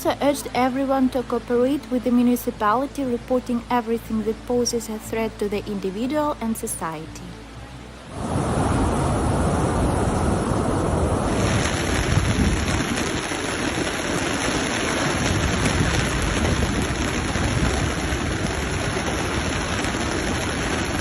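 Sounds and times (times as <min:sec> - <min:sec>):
fast-running flood water: 0:07.5 - 0:21.0.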